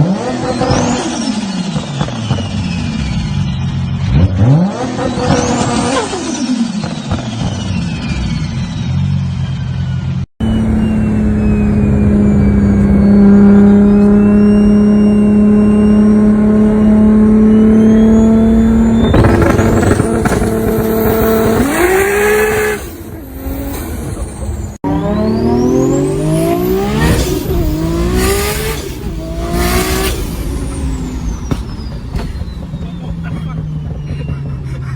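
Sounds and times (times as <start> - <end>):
car engine revving: 10.4 - 34.9
exhaust bangs: 10.4 - 34.9.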